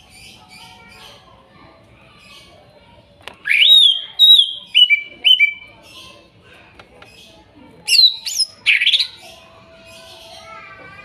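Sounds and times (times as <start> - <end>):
bird whistling song: 3.5 - 5.7, 7.9 - 9.2.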